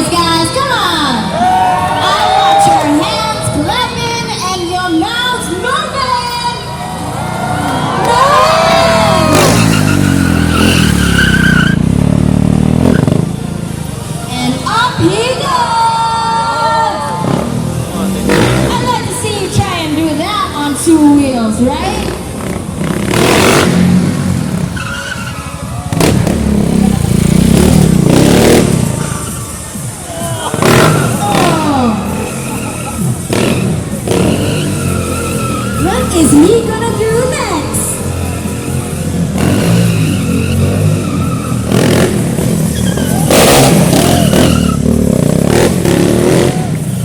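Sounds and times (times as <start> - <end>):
tyre skidding and squealing: 6.2 - 20.8, 21.7 - 47.0
motorcycle engine revving: 8.0 - 14.2, 17.2 - 20.0, 21.2 - 47.0.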